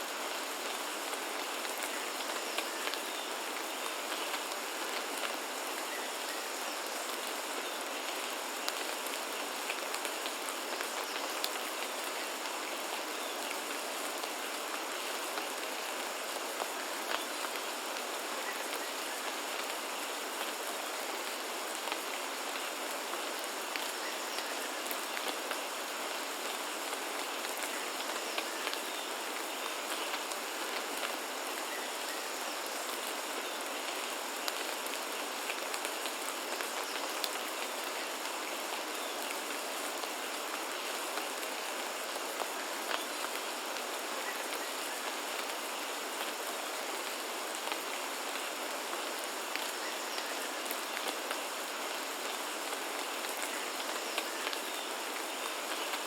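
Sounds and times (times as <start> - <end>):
rain drops ticking on surfaces: 0.0 - 56.0.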